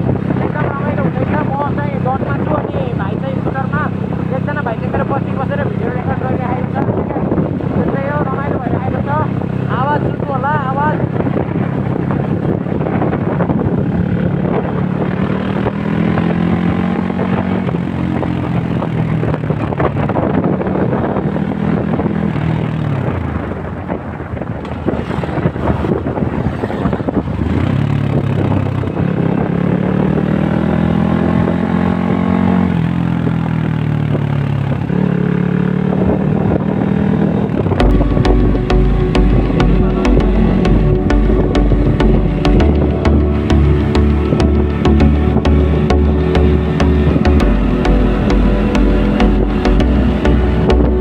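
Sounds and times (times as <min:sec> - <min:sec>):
vehicle engine speeding up: 0:00.0 - 0:51.0
steady rush of noise: 0:37.8 - 0:51.0.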